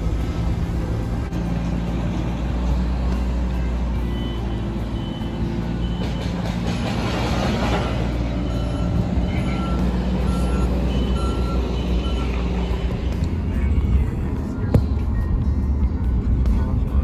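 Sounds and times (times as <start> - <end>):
heavy vehicle engine rumbling: 0.0 - 17.0
reversing alarm beeping: 3.6 - 7.0, 8.4 - 12.9.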